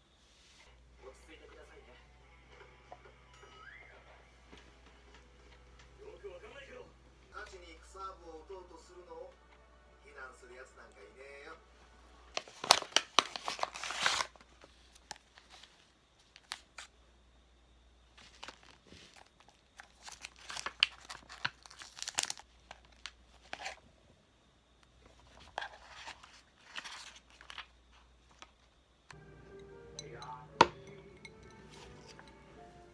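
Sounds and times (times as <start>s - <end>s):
wrapping crinkling and tearing: 12.3s - 16.9s, 18.2s - 23.8s, 25.1s - 28.5s.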